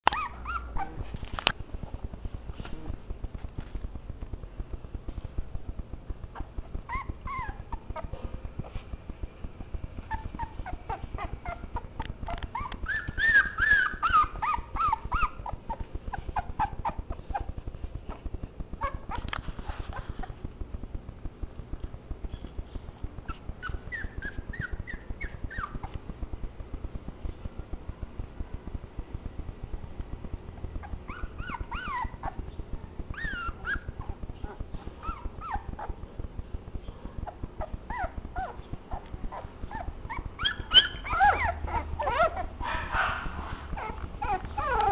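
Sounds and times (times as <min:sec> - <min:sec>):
puppies whimpering and squealing: 0:00.0 - 0:01.1, 0:06.3 - 0:08.9, 0:10.0 - 0:20.4, 0:23.2 - 0:26.0, 0:30.8 - 0:36.0, 0:37.1 - 0:44.9.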